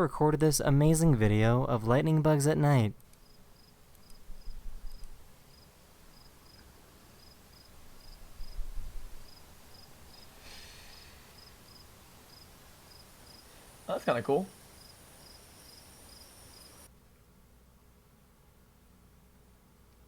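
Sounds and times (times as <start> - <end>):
crickets chirping: 3.2 - 16.9.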